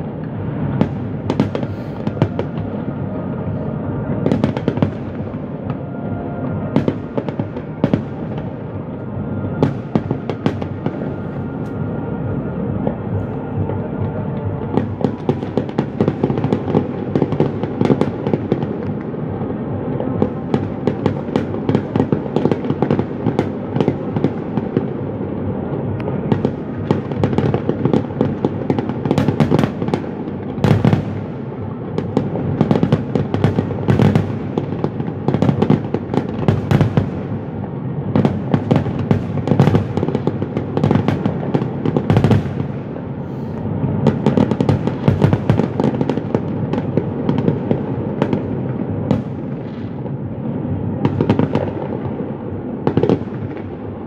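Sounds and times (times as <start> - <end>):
low rumble: 0.0 - 17.2
fireworks bangs and crackles: 0.0 - 54.0.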